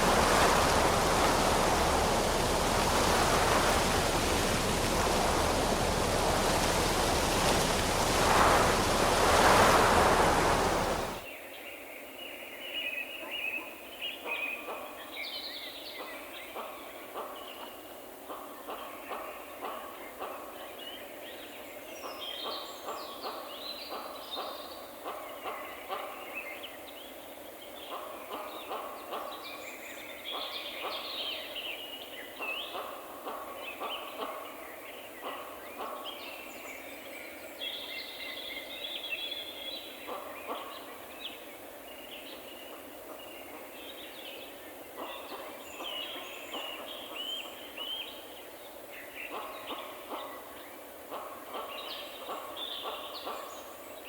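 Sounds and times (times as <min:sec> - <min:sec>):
background hiss: 0:00.0 - 0:11.2
birds chirping: 0:00.0 - 0:11.2.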